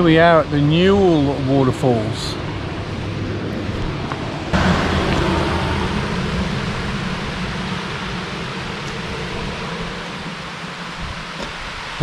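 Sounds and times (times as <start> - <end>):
waterfall rushing: 4.6 - 12.0.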